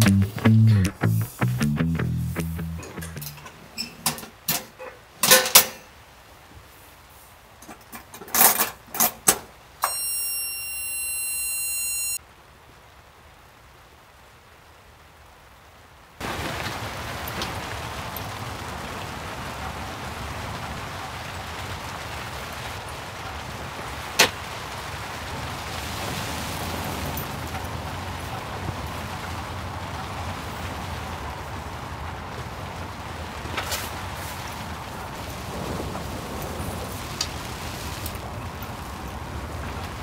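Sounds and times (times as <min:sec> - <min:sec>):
high electronic tone: 0:00.0 - 0:03.4, 0:09.8 - 0:12.2
steady rain falling: 0:00.0 - 0:10.8, 0:11.8 - 0:40.0.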